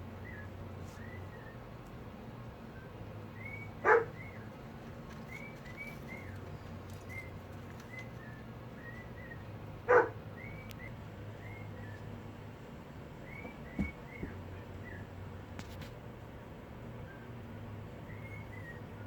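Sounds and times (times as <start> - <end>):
dog barking: 3.8 - 4.2, 9.9 - 10.2.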